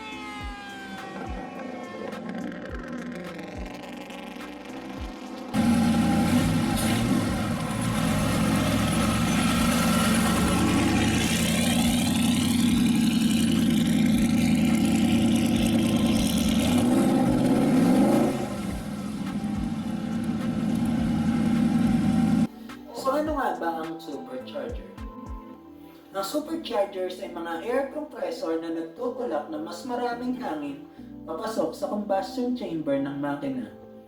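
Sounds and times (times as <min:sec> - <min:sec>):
race car engine revving: 0:00.0 - 0:22.5.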